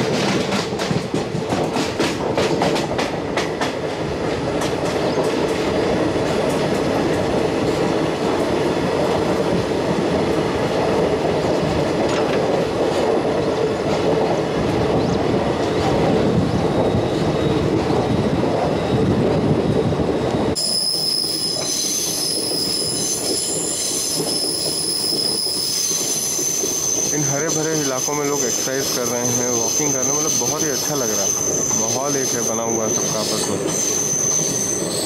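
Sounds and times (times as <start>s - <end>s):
train wheels rumbling on rails: 0.0s - 35.0s
train wheels squealing: 14.9s - 35.0s.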